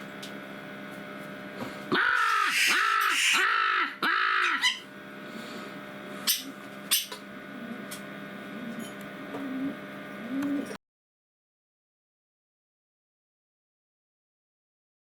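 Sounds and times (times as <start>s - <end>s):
jackdaw calling: 1.9s - 4.9s.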